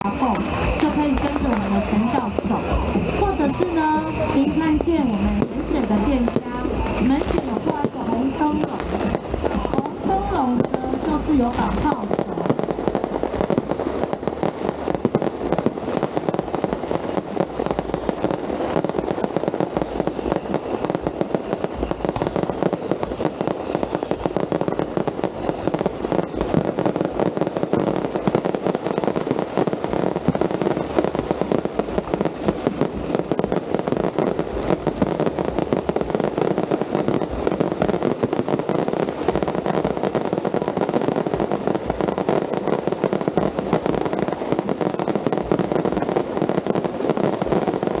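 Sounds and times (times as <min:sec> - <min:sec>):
fireworks crackling: 0:00.0 - 0:48.0.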